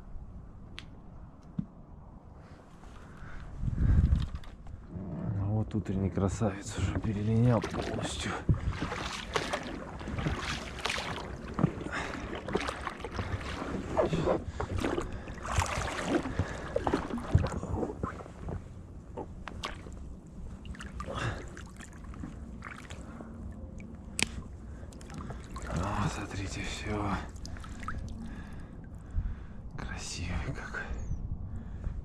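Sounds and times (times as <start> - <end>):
water sounds: 6.3 - 29.8.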